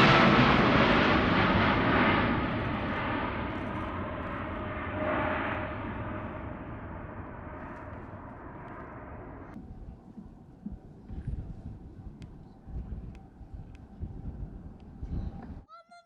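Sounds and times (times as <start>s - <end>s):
jet airliner engines rushing: 0.0s - 9.6s.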